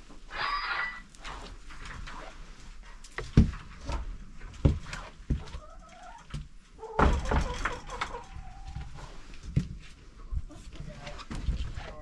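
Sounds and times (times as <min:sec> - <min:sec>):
chicken clucking: 0:05.4 - 0:09.2.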